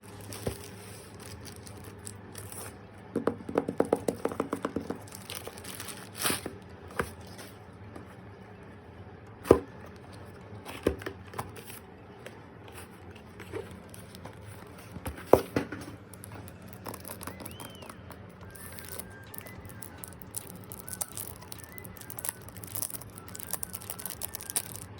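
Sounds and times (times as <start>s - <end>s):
wrapping tearing and crinkling: 0.0s - 2.8s, 4.8s - 7.6s, 13.3s - 15.0s, 16.1s - 24.9s.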